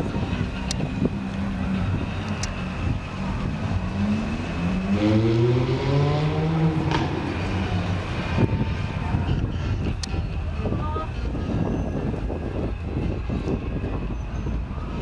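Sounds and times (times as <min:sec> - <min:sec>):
sports car engine accelerating: 0:01.2 - 0:08.5.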